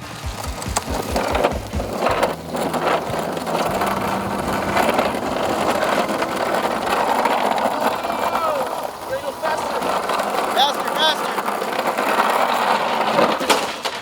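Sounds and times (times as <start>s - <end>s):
electric dirt bike motor whirring: 0.0s - 14.0s.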